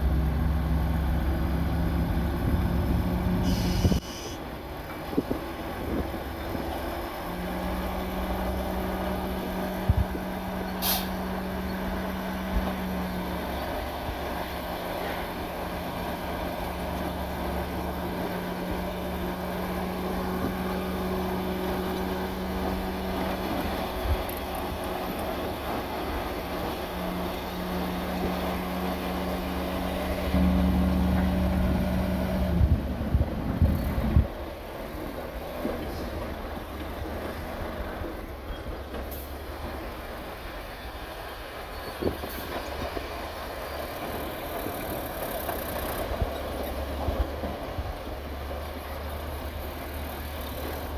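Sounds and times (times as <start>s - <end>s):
diesel earthmoving machinery running: 0.0s - 50.9s
short hiss: 3.4s - 4.4s, 10.8s - 11.2s.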